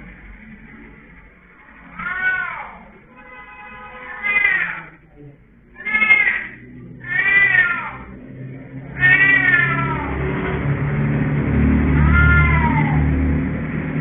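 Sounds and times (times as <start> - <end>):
low rumble: 0.0 - 3.2, 4.9 - 14.0
cat meowing: 1.8 - 5.0, 5.8 - 8.2, 8.9 - 10.2, 11.9 - 13.1.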